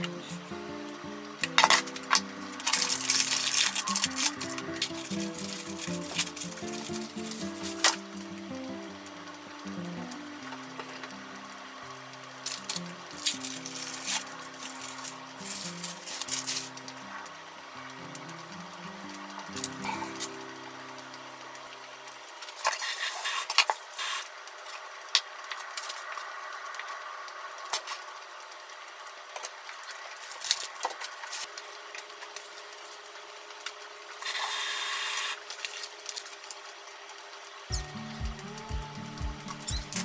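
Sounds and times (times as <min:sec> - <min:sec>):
hands rustling food: 0:01.4 - 0:08.0.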